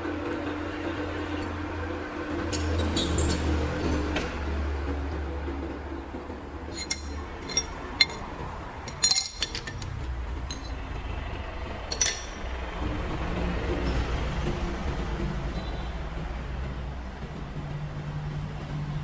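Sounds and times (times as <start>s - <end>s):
metal clinking: 6.7s - 11.2s, 11.9s - 12.6s.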